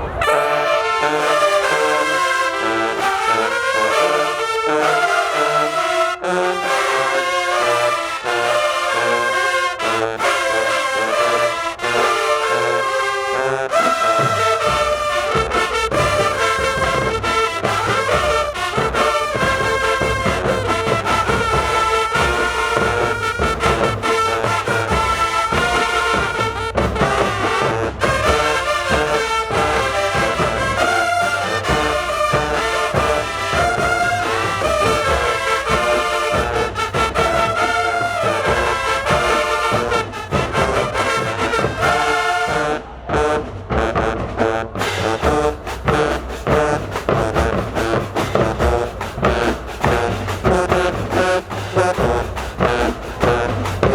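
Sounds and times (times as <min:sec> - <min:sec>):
marching band brass chords: 0:00.0 - 0:53.9
driving drum hits: 0:14.2 - 0:53.9.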